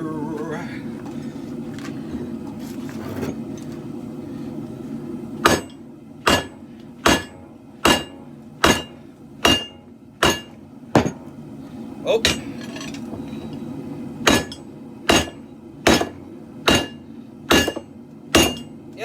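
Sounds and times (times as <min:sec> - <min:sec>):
forge burners roaring: 0:00.0 - 0:19.0
hammer striking steel on anvil: 0:05.4 - 0:11.2, 0:12.2 - 0:13.0, 0:14.2 - 0:18.7.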